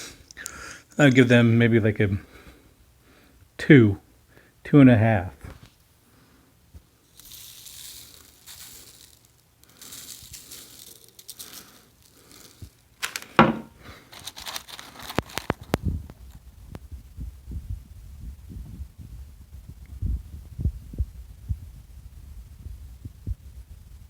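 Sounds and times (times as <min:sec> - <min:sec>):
paper crinkling and rustling: 0:08.1 - 0:16.3.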